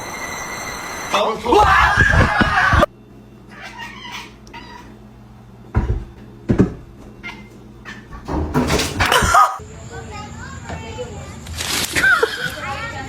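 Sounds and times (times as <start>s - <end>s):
cat meowing: 3.5s - 5.0s, 7.2s - 8.1s.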